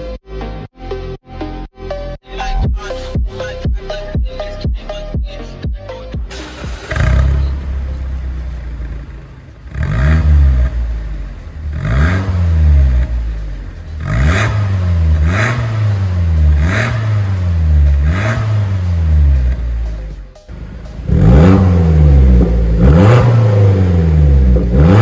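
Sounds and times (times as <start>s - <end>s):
car engine revving: 6.3s - 25.0s.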